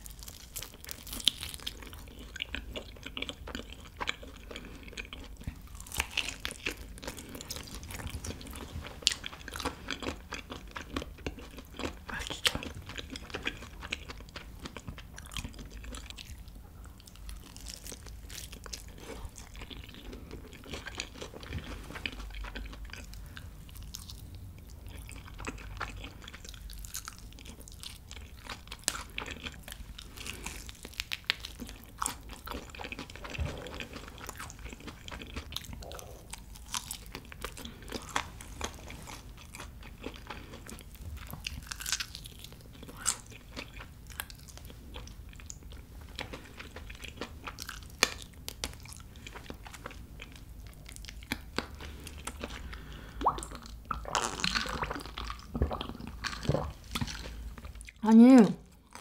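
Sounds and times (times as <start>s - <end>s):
crunching fried chicken: 0.0s - 58.0s
wet mouth sounds: 33.0s - 40.6s, 51.3s - 58.4s.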